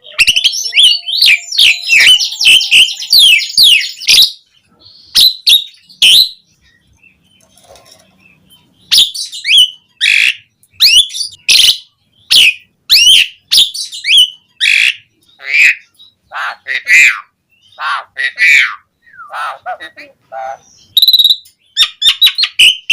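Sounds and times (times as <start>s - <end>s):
starling singing whistles: 0.0s - 4.4s, 20.8s - 22.9s.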